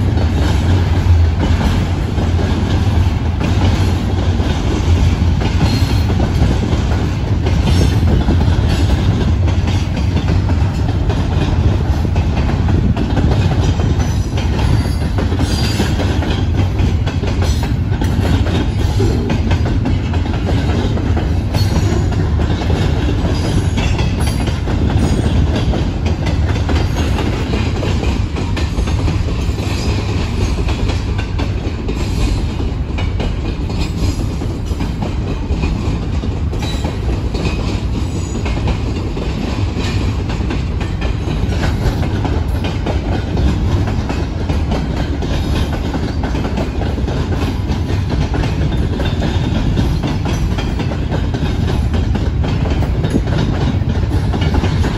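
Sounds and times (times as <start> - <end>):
freight train rumbling past: 0.0 - 54.9
train wheel clicks: 0.0 - 54.9.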